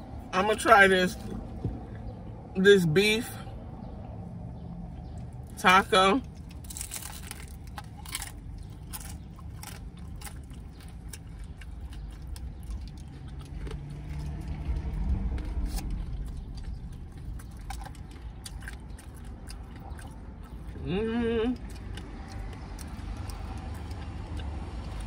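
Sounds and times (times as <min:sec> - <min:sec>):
chewing with small crunches: 0:00.0 - 0:25.0
steady low rumble: 0:00.0 - 0:25.0.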